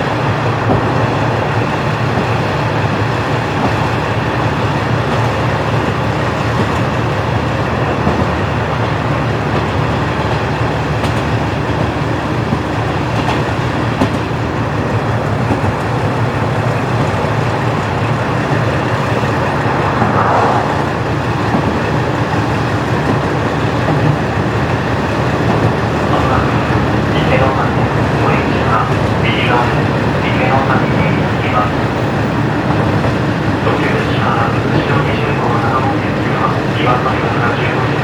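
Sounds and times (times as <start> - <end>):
wheels clicking on rail joints: 0.0 - 19.5, 21.4 - 37.0
diesel railcar engine drone: 0.0 - 38.0.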